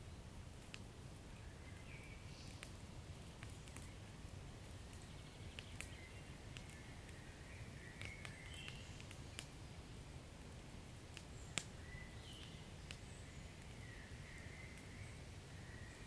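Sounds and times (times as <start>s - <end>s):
low rumble of flames: 0.0s - 16.0s
wood fire pops and snaps: 0.5s - 0.9s, 1.8s - 4.0s, 4.6s - 7.2s, 7.9s - 9.7s, 10.4s - 13.9s.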